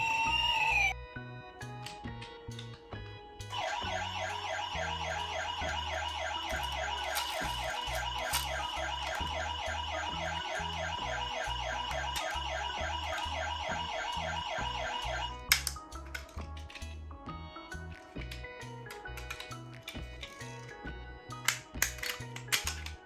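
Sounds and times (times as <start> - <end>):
toy siren warbling: 0.0 - 1.0, 3.5 - 15.5.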